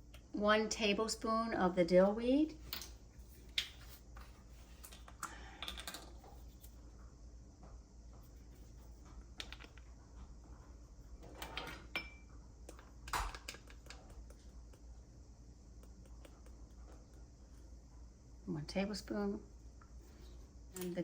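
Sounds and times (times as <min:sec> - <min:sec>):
kitchen handling clicks and rustles: 0:11.2 - 0:12.1.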